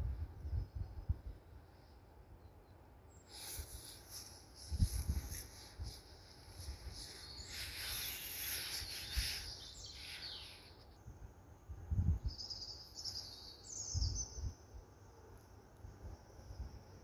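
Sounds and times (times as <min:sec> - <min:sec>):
birds chirping and singing: 0:06.6 - 0:11.0.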